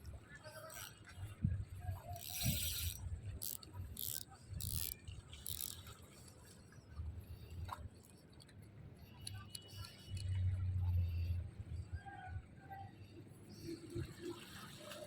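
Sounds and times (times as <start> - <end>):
fishing reel whirring: 0.6 - 1.0, 2.0 - 5.9.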